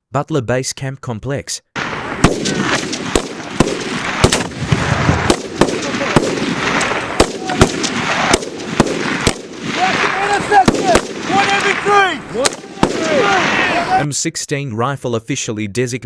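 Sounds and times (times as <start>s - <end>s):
outdoor noise: 1.6s - 16.0s
gunshots: 1.8s - 14.0s.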